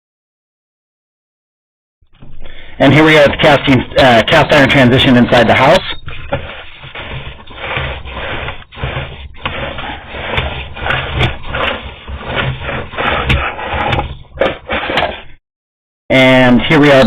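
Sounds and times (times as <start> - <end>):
camera cable scraping pipe wall: 2.2 - 15.4.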